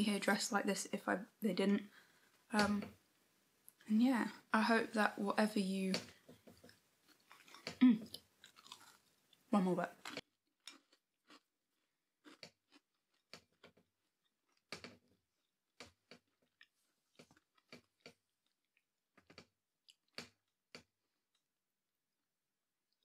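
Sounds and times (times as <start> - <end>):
crunchy cookie chewing: 6.1 - 21.5.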